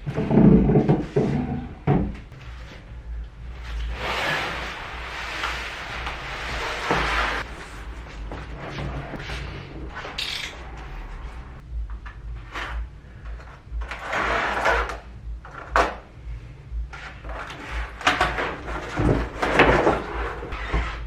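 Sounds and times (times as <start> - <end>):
sliding rustling swishes: 2.3 - 11.6.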